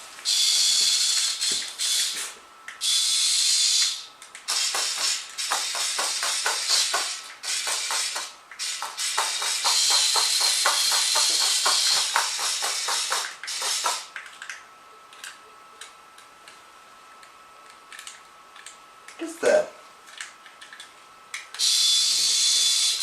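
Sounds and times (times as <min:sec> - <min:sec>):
faint steady hum: 0:00.0 - 0:23.0
toy motor whirring: 0:00.2 - 0:14.6, 0:20.1 - 0:23.0
toy spider legs clattering: 0:03.8 - 0:14.6.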